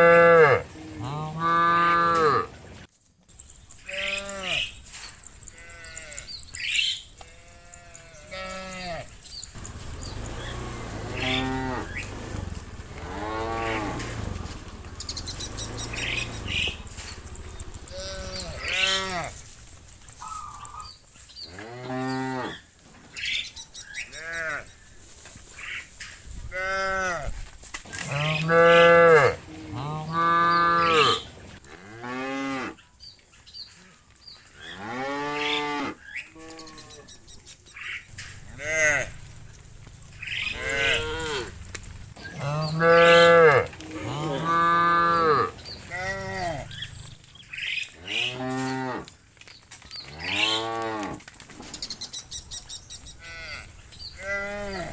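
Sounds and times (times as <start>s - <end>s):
cattle mooing: 0.0s - 2.5s, 3.8s - 20.9s, 21.5s - 22.6s, 28.0s - 32.8s, 33.8s - 37.1s, 38.1s - 47.3s, 47.9s - 49.1s, 53.2s - 54.9s.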